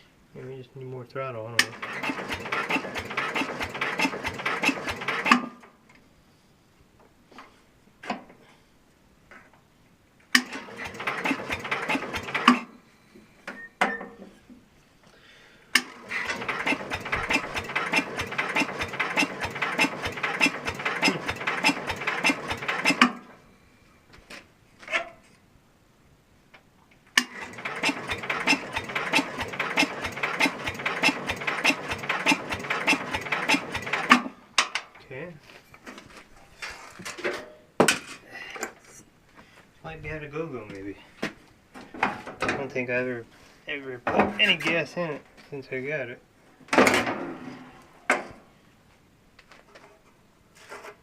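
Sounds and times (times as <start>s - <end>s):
electric starter cranking engine: 1.6s - 5.6s, 10.4s - 12.7s, 15.8s - 23.4s, 27.2s - 34.4s
starter clicks: 15.7s - 23.2s.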